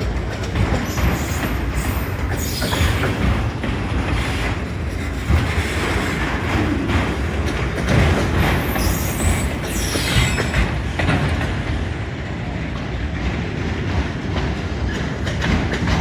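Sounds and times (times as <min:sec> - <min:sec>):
freight train rumbling past: 0:00.0 - 0:16.0
wheels clattering over rail joints: 0:00.0 - 0:16.0
faint high wheel squeal: 0:00.9 - 0:03.2, 0:08.4 - 0:11.0.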